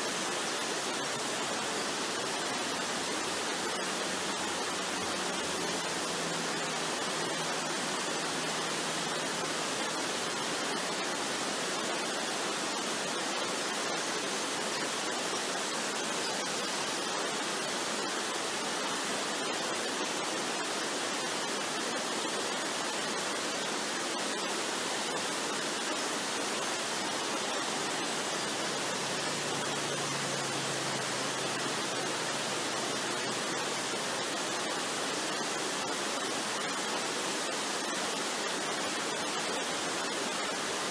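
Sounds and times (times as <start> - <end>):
waterfall rushing water: 0.0 - 40.9.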